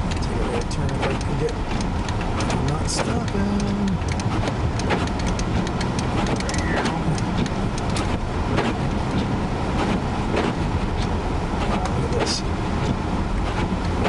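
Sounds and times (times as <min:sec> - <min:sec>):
car road rumble: 0:00.0 - 0:14.0
short irregular ticks and clicks: 0:00.0 - 0:14.0.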